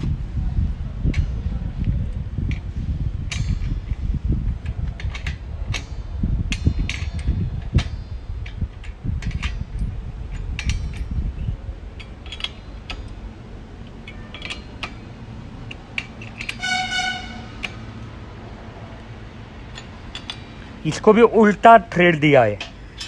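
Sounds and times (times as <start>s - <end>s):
metal clicks and clinks: 4.6s - 16.7s, 19.0s - 20.7s
horn-like tone: 16.6s - 17.8s
low rumble: 16.6s - 19.9s.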